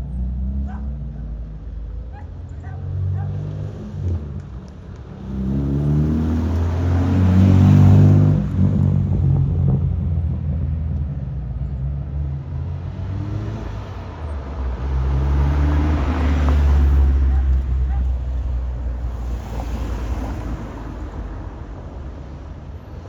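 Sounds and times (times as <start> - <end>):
car engine revving: 3.0 - 10.7, 12.2 - 21.3.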